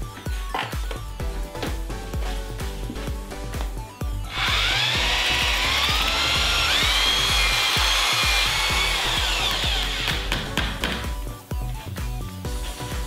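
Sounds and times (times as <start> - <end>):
background music with steady beat: 0.0 - 13.0
electric drill mixing sand: 4.2 - 10.7.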